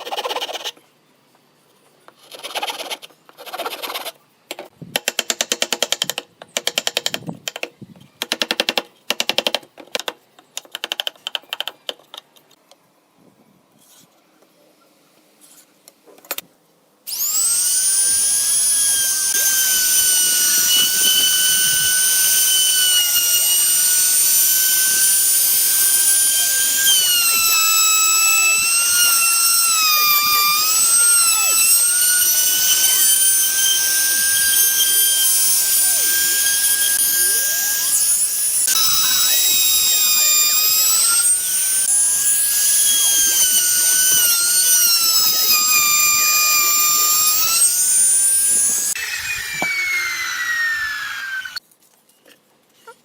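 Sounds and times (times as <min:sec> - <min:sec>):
power tool motor whining: 0:17.1 - 0:51.6.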